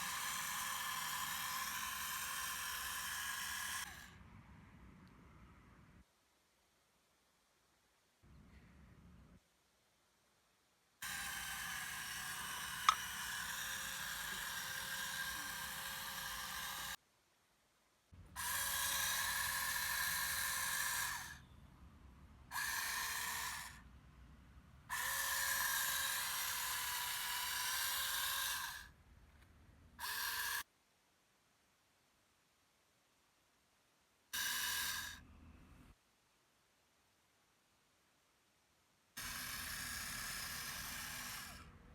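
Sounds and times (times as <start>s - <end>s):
electric gear motor whining: 0.0s - 4.1s, 11.0s - 17.0s, 39.2s - 41.7s.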